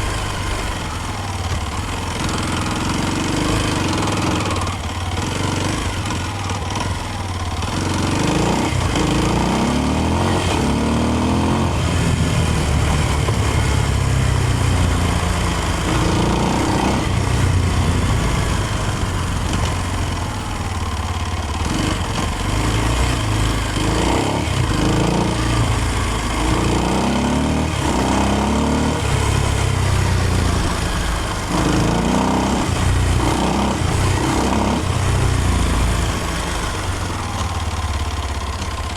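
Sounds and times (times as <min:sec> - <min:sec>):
motorcycle engine revving: 0:00.0 - 0:38.9
steady rushing noise: 0:11.8 - 0:20.7.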